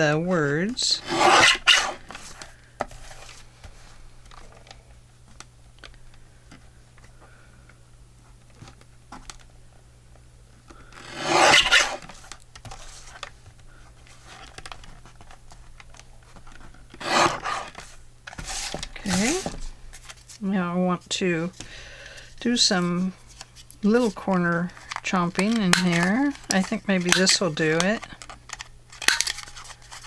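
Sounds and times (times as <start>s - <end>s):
low electrical hum: 0.0s - 30.0s
paper rubbing: 11.0s - 12.2s, 17.0s - 17.8s, 18.4s - 20.4s
scissors snipping paper: 11.1s - 12.2s, 24.0s - 28.3s.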